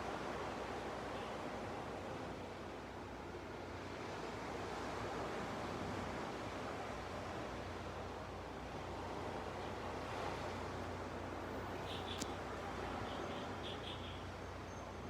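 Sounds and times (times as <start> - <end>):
small waves washing on beach: 0.0 - 14.6.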